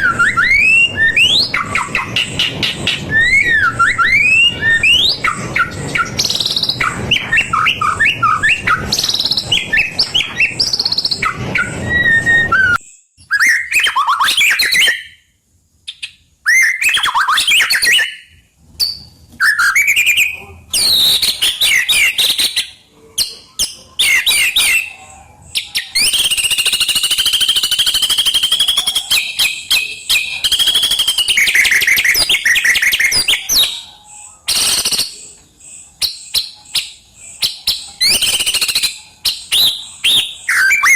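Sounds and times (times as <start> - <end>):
bird singing whistled phrases: 0.0 - 15.3, 15.9 - 35.4, 36.0 - 40.9.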